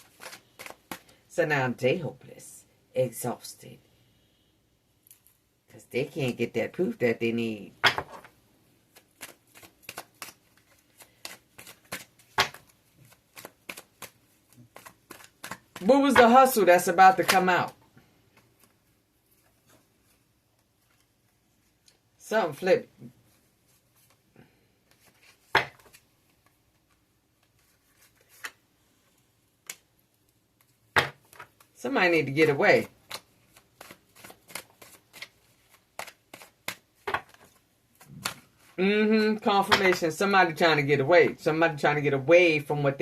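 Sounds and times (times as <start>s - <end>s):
cards being shuffled: 0.0s - 1.2s, 7.8s - 22.0s, 23.3s - 24.2s, 24.8s - 28.7s, 30.6s - 38.8s
cards snapping: 0.0s - 1.2s, 8.9s - 16.3s, 32.8s - 37.5s
cards slapping on a table: 7.8s - 8.3s, 9.2s - 16.4s, 25.4s - 26.0s, 31.0s - 31.6s, 36.0s - 37.4s.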